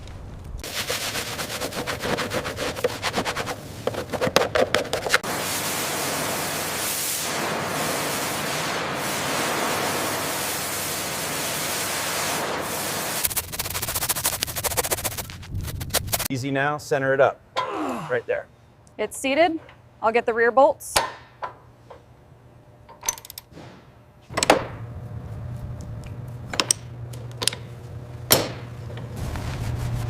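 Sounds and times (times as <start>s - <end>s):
loud steady hiss: 5.2s - 14.0s.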